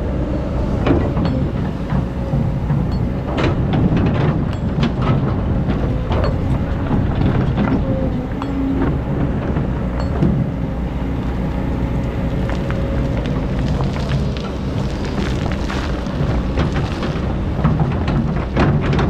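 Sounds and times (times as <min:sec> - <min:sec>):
diesel engine running: 0:00.0 - 0:19.0
metallic clanks and knocks: 0:00.8 - 0:10.6.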